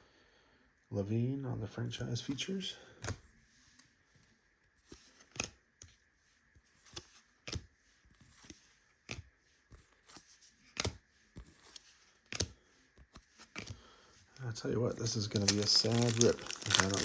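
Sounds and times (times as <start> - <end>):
cards flicking through a stack: 4.9 - 5.6, 6.8 - 7.7, 8.3 - 9.3, 10.0 - 13.8, 15.0 - 17.0.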